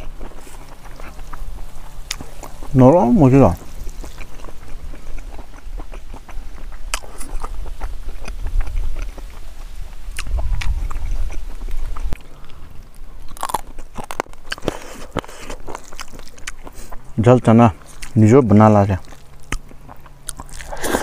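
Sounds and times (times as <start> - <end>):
person chewing food: 0.0 - 2.8, 3.4 - 18.3, 18.9 - 21.0
low rumble: 0.0 - 13.3
wet mouth clicks: 10.1 - 12.2.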